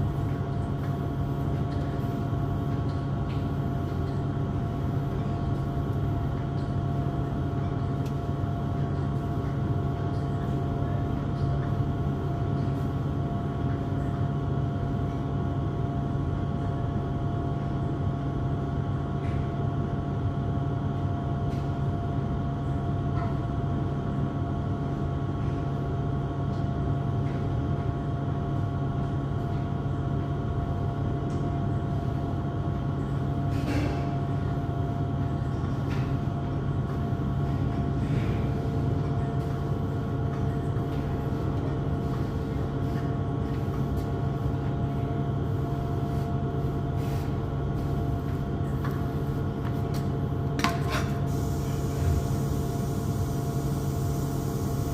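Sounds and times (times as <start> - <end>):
mechanical hum with thin tones: 0.0 - 54.9.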